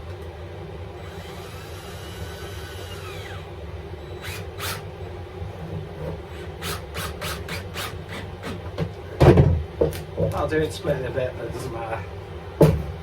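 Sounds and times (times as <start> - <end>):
cordless drill motor whining: 1.0 - 5.2, 6.0 - 8.6.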